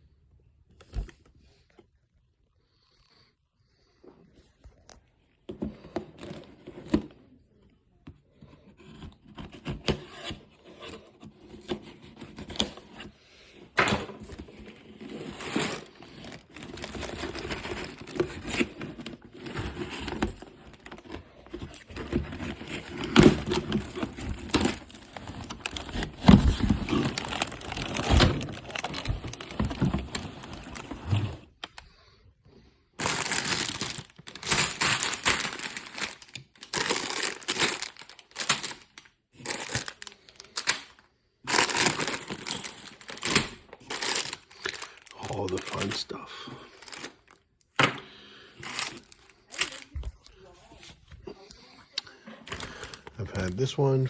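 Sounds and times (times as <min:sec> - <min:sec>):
packaging rustling and crinkling: 0:09.3 - 0:32.1, 0:33.0 - 0:47.7, 0:48.6 - 0:51.2, 0:52.4 - 0:54.0.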